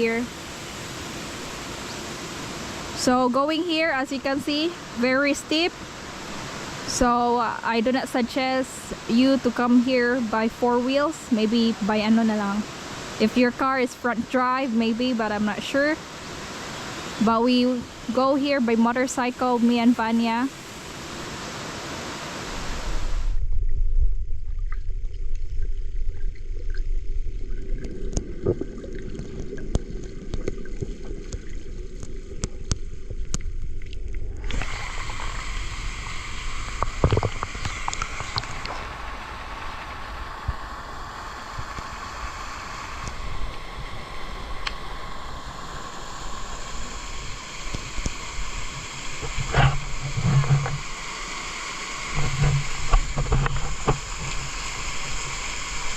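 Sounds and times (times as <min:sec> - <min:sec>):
waterfall and stream rushing: 0:00.0 - 0:23.5, 0:34.3 - 0:55.9
low rumble: 0:22.9 - 0:50.7.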